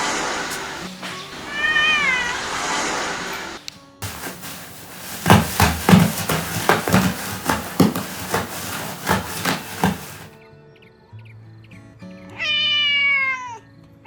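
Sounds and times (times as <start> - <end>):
dull knocks: 4.0 - 10.3.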